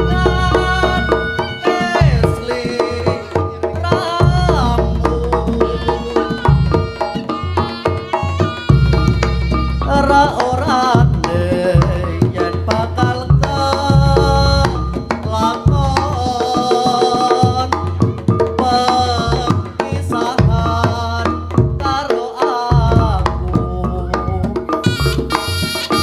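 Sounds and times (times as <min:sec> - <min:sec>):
heavy bass beat: 0:00.0 - 0:01.4, 0:08.6 - 0:10.4
hand drum strokes: 0:00.0 - 0:22.0, 0:22.8 - 0:26.0
wavering melody: 0:05.4 - 0:10.5, 0:23.4 - 0:26.0.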